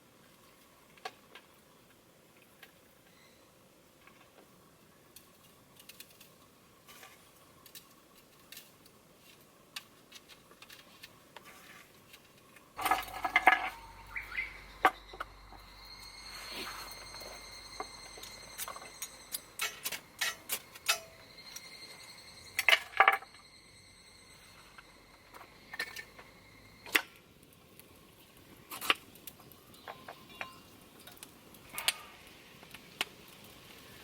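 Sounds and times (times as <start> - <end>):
tableware clinking and knocking: 12.8 - 14.0, 14.7 - 23.4.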